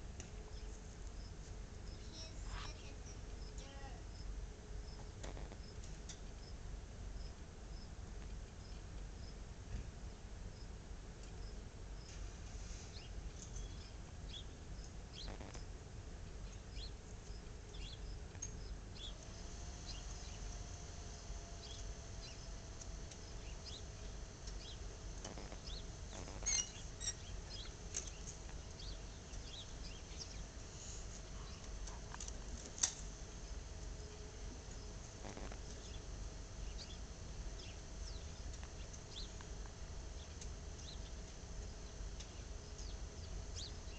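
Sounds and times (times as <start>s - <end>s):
faint steady hum: 0.0s - 43.9s
low outdoor rumble: 0.0s - 43.9s
small birds chirping: 0.2s - 9.5s, 10.1s - 43.9s.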